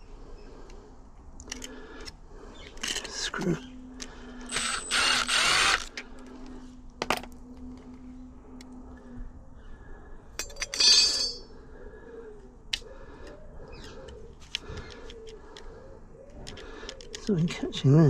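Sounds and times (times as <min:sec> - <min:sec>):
metal parts clinking: 0:01.4 - 0:06.0, 0:10.4 - 0:11.5.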